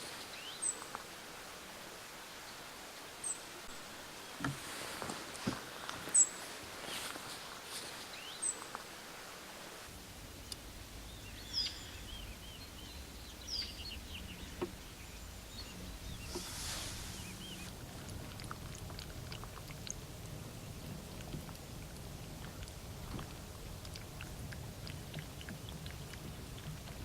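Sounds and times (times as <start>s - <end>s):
small birds chirping: 8.0s - 8.8s, 10.3s - 17.8s
low outdoor rumble: 9.8s - 27.0s.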